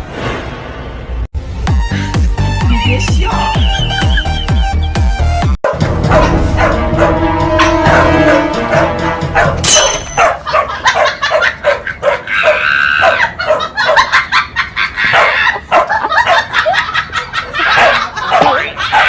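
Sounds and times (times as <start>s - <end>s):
dog barking and yipping: 5.7s - 14.4s, 15.0s - 16.8s, 17.6s - 19.0s.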